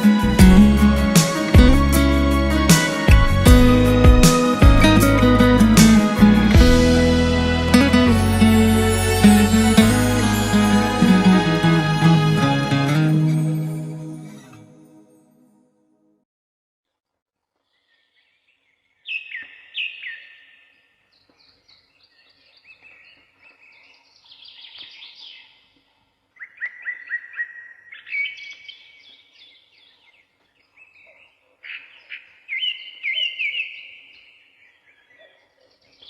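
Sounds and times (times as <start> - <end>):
birds chirping and trilling: 17.7 - 36.0.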